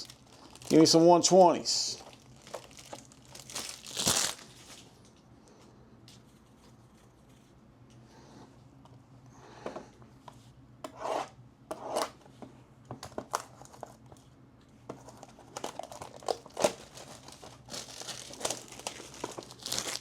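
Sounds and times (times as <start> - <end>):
packaging crinkling and tearing: 0.0 - 1.0, 1.9 - 5.1, 15.0 - 20.0.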